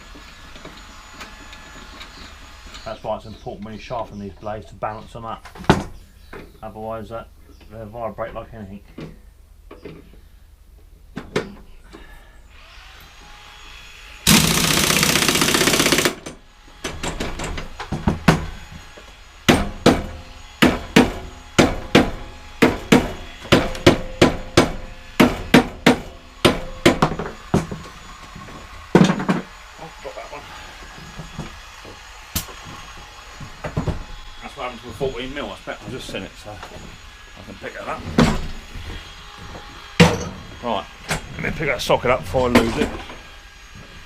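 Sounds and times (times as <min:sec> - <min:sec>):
impact gun burst: 0:14.3 - 0:16.2
sharp metallic knocks: 0:19.5 - 0:27.8.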